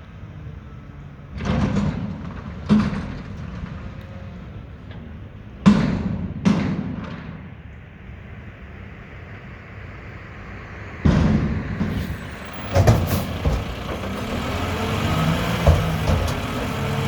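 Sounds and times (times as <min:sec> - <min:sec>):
garbage truck running: 0:00.1 - 0:06.4, 0:08.2 - 0:17.0
rumbling clatter: 0:01.3 - 0:07.7, 0:11.0 - 0:17.0.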